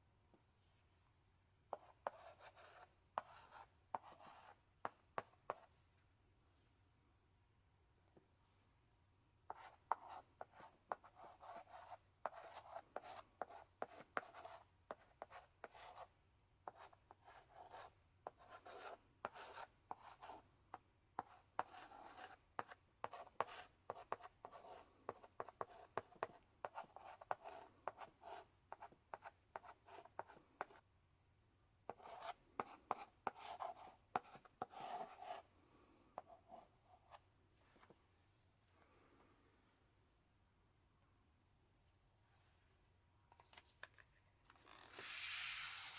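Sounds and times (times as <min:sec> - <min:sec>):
chalk scratching on blackboard: 0:01.7 - 0:04.6, 0:09.5 - 0:16.1, 0:16.7 - 0:20.4, 0:21.2 - 0:30.8, 0:31.9 - 0:35.5
chalk tapping on blackboard: 0:09.5 - 0:16.1, 0:16.7 - 0:30.8, 0:31.9 - 0:35.4.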